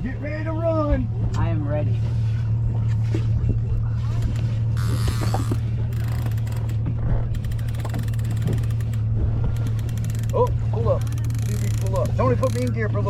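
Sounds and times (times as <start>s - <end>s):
outboard engine idling: 0.0s - 13.0s
fishing reel ratcheting clicks: 4.8s - 6.8s, 7.4s - 9.0s, 9.6s - 10.4s, 11.0s - 12.7s.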